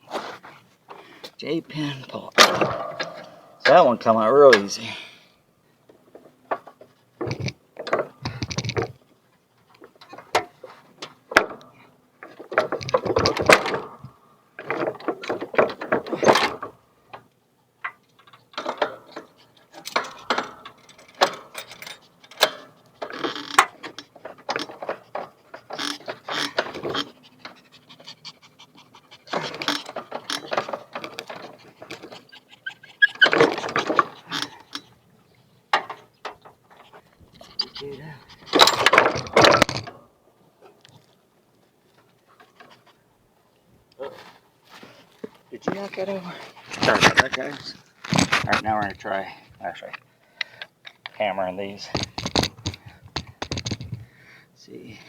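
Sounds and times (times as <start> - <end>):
rustling scrapes: 0.0 - 1.2, 44.0 - 49.0
metal clanks and knocks: 2.4 - 4.6, 17.9 - 28.2, 29.1 - 32.3, 33.0 - 34.9, 35.7 - 40.0.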